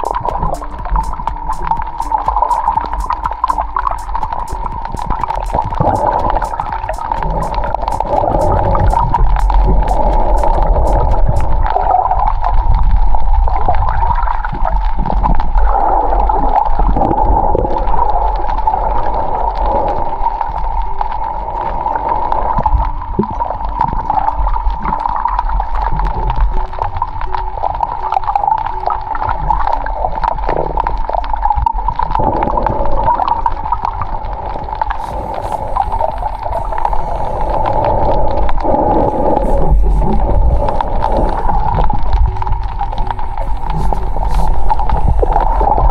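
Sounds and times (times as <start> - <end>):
low rumble: 0.0 - 23.2, 33.9 - 45.9
sharp clicks and crackles: 0.0 - 45.9
underwater gurgling and rushing: 0.0 - 45.9.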